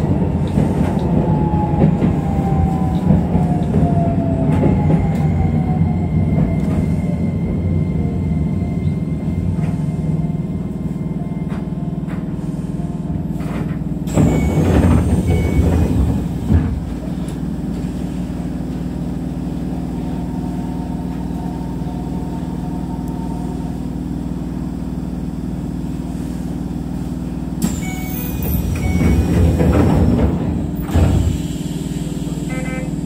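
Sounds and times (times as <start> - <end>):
electric train equipment hum: 0.0 - 33.0
air hiss and clatter: 28.5 - 32.6.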